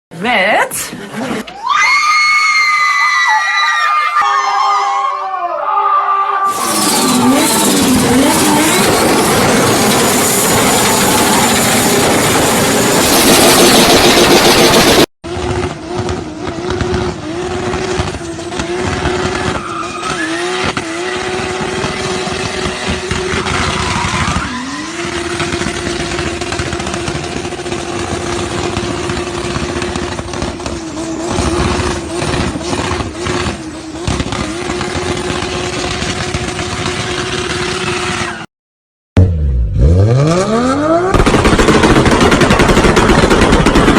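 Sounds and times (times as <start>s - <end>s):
exhaust pops and bangs: 6.5s - 38.3s, 41.1s - 43.9s
car engine roaring: 6.5s - 38.4s, 39.2s - 43.9s
engine revving on the limiter: 6.5s - 38.4s, 39.2s - 42.2s.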